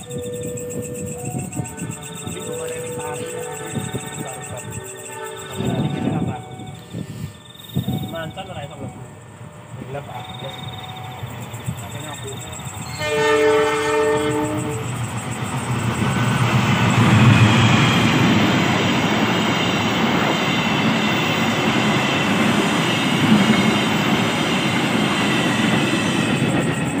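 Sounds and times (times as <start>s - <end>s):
train horn: 0.0s - 7.4s, 12.8s - 15.0s
train wheels rumbling on rails: 0.0s - 27.0s.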